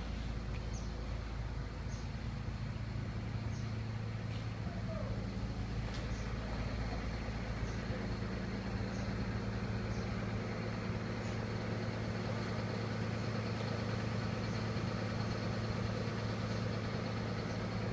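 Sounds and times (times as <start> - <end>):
hydraulic power unit humming: 0.0 - 17.9
faint light ticks: 0.5 - 0.8, 5.9 - 6.3.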